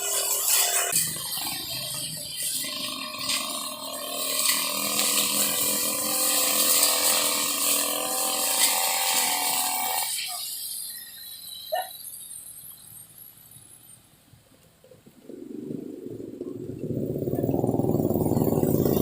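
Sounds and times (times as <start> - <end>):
brush cutter engine running: 0.0 - 10.3, 17.0 - 19.0.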